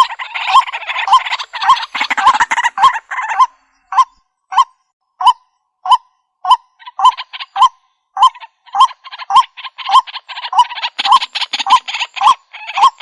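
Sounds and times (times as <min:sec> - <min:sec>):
rough chattering bird notes: 0:00.0 - 0:04.1.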